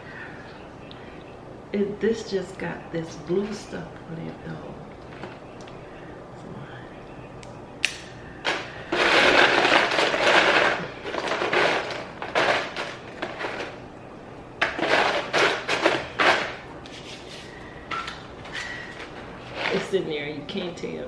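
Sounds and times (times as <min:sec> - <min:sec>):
chips rustling in a bowl: 0:08.5 - 0:13.8.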